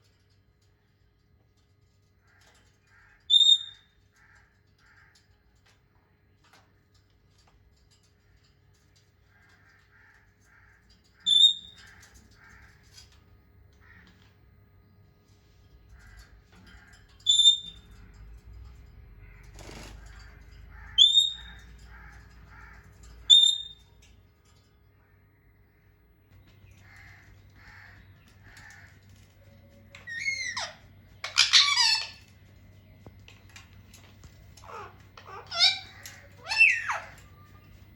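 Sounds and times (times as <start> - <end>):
parrot high-pitched calls: 2.9 - 3.9, 11.2 - 12.8, 16.0 - 17.8, 20.0 - 23.9, 26.7 - 32.6, 33.5 - 37.8
parrot low chattering: 30.0 - 32.3, 34.4 - 37.5.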